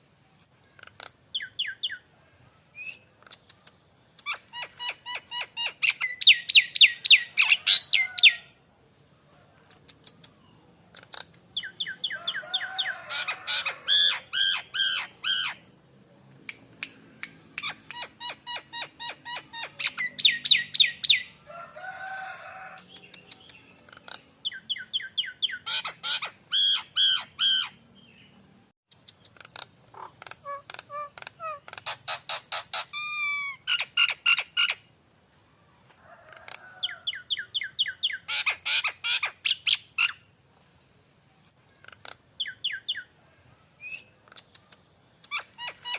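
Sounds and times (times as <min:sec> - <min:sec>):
bird chattering song: 0:00.7 - 0:02.1, 0:02.7 - 0:08.5, 0:09.6 - 0:15.7, 0:17.3 - 0:21.4, 0:22.8 - 0:34.9, 0:36.7 - 0:40.4, 0:41.7 - 0:43.2, 0:43.8 - 0:45.9.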